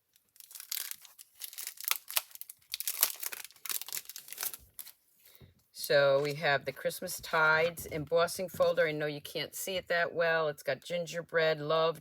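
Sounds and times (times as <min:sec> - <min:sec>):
packaging crinkling and rustling: 0:00.0 - 0:05.4.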